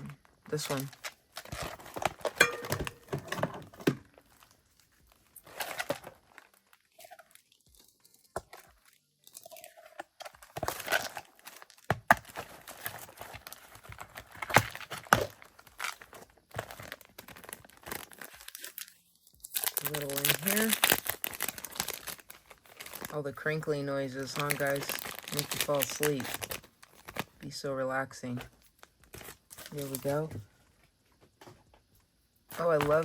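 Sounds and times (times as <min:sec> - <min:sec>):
plastic packaging crinkling: 0:00.2 - 0:27.4, 0:28.4 - 0:30.4, 0:32.5 - 0:33.0.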